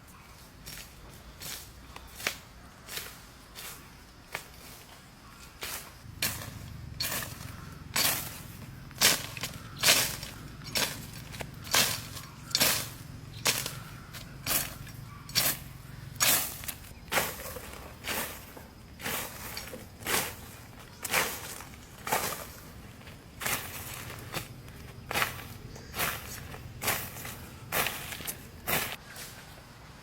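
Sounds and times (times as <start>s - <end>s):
sharp crunching strikes: 5.6s - 29.0s.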